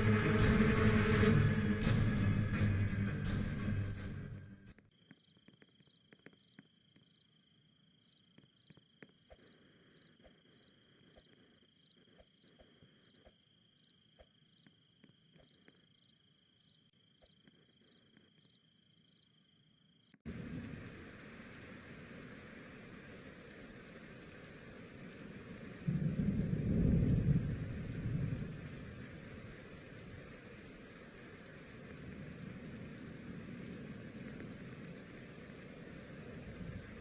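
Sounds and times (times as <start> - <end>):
steady rain: 0.0 - 4.6, 20.2 - 37.0
insect chirping: 5.0 - 20.2
insects trilling: 5.0 - 20.2.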